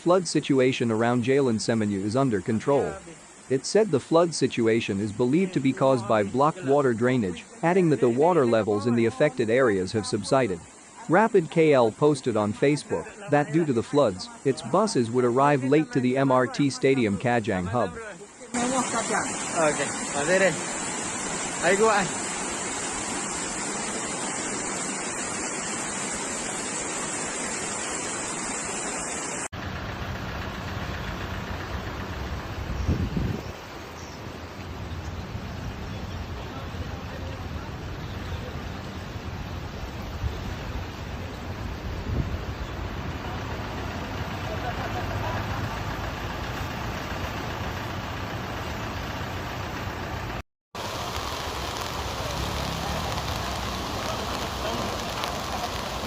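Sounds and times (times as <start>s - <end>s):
rush of flowing water: 0.0s - 29.5s, 30.4s - 56.0s
vehicle engine running: 29.6s - 33.2s, 41.6s - 56.0s
low rumbling noise: 34.3s - 56.0s.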